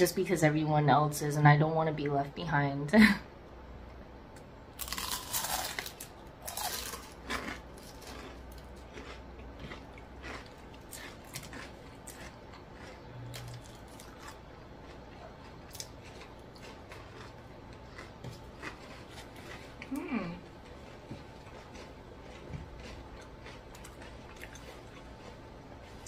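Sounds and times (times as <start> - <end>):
crunching bites of fried food: 4.8 - 19.9, 20.6 - 26.0
quiet chewing with clicks: 7.4 - 26.0.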